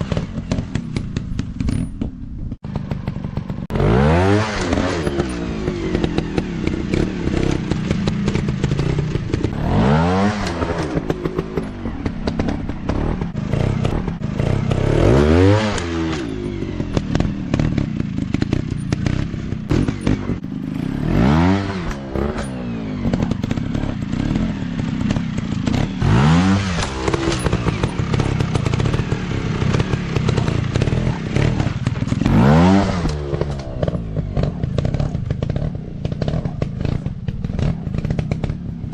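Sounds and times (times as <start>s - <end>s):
dirt bike engine revving: 2.6s - 38.9s.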